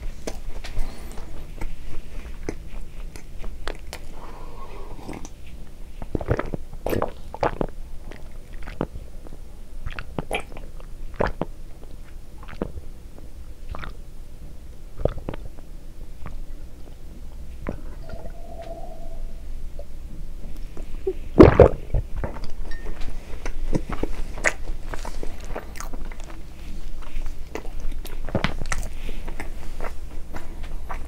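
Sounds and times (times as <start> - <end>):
man chewing bread: 0.0 - 14.1, 14.9 - 16.4, 22.2 - 31.0
drinking from a glass: 17.7 - 20.0.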